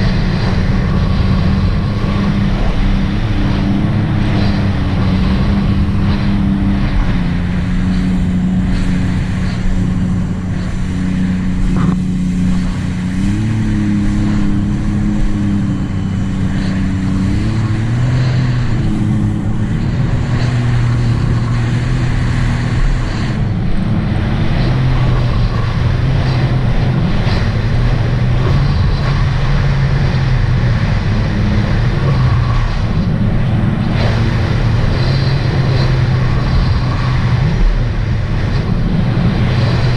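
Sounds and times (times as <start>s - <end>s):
personal watercraft engine drone: 0.0s - 39.9s.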